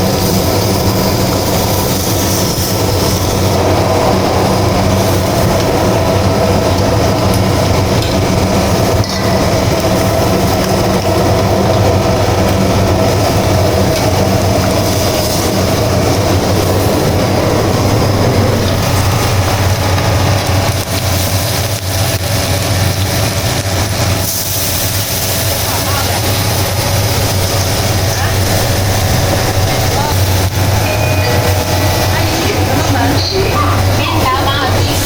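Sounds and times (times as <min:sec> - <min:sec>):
loud mechanical roar: 0:00.0 - 0:35.0
low hum: 0:00.0 - 0:35.0.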